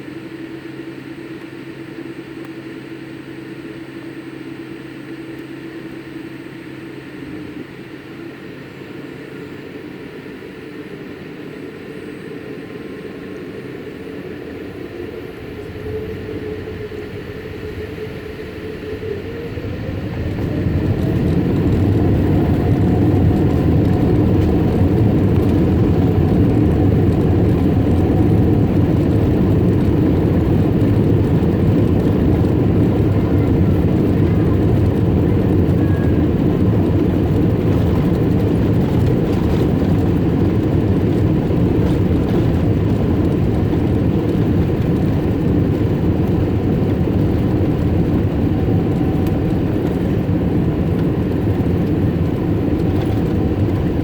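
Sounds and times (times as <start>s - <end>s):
jet engines roaring: 13.5s - 54.0s.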